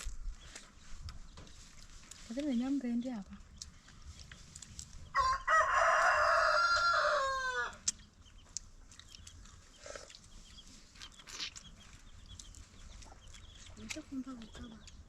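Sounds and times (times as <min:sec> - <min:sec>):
rooster crowing: 0:05.2 - 0:07.8.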